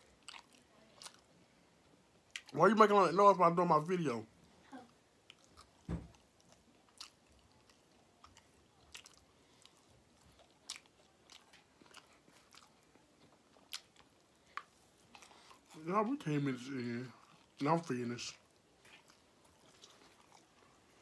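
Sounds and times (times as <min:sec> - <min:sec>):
person chewing crunchy food: 0:00.0 - 0:01.4, 0:02.2 - 0:02.5, 0:05.2 - 0:15.9, 0:16.9 - 0:21.0.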